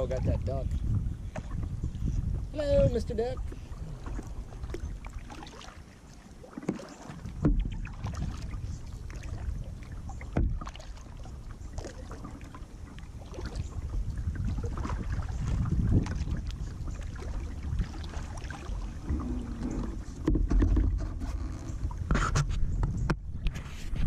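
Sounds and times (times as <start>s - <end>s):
wind rumble on microphone: 0.0s - 5.5s, 7.2s - 24.0s
paddle swishing through water: 0.0s - 24.0s.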